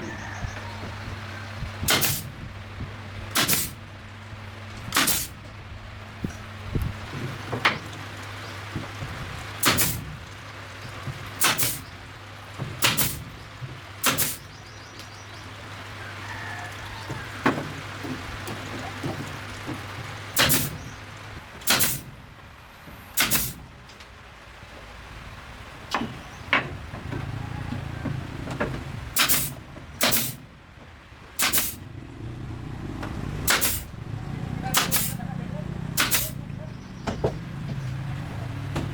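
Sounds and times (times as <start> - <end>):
hand tool striking or scraping: 31.4 - 31.8, 33.5 - 33.9, 36.0 - 36.4.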